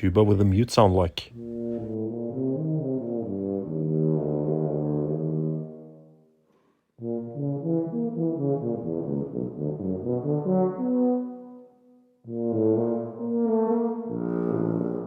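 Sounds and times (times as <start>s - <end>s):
tuba melody: 1.3s - 15.0s.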